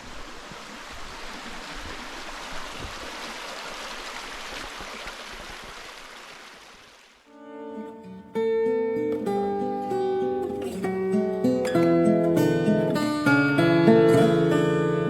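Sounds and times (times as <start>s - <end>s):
rushing water: 0.0s - 7.3s
acoustic guitar music: 7.3s - 15.0s.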